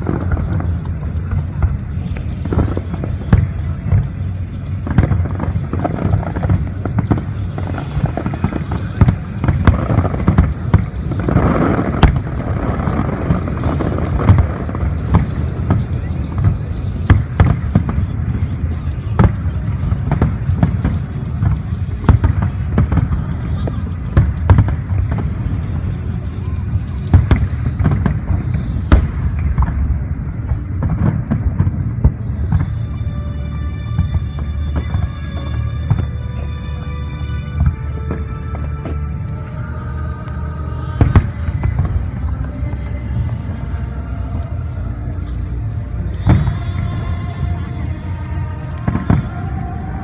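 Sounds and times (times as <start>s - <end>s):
loud firework crack: 0.0s - 33.0s
fireworks booming and banging: 0.0s - 50.0s
low rumble: 0.0s - 50.0s.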